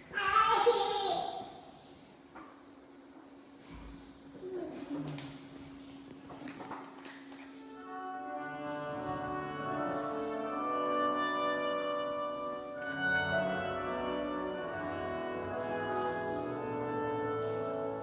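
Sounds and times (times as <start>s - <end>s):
orchestra playing an anthem: 7.7s - 18.0s.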